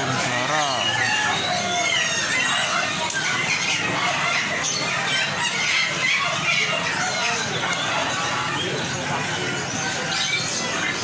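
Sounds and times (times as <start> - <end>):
caged birds chirping: 0.0 - 11.0
chickens clucking and squawking: 0.0 - 11.0.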